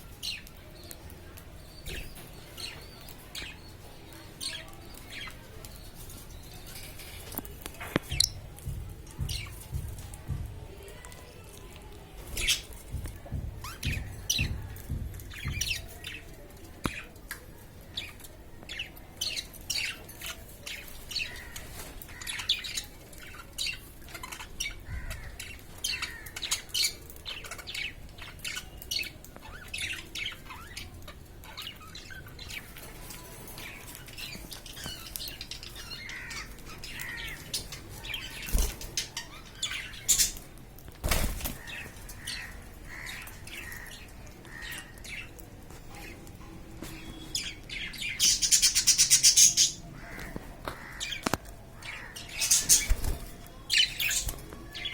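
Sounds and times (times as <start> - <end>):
budgerigars chirping and squawking: 41.4 - 45.3, 46.9 - 54.9.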